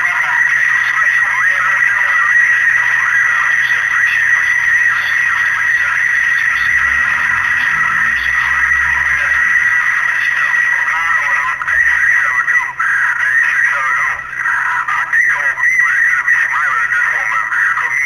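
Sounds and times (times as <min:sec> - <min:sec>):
radio static hiss: 0:00.0 - 0:18.0.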